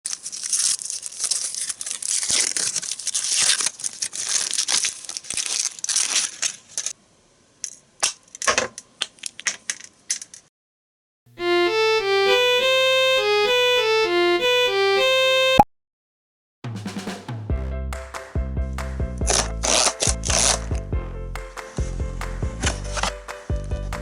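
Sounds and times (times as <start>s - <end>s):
packaging tearing and rustling: 0.0s - 7.0s, 19.2s - 20.8s, 22.6s - 23.6s.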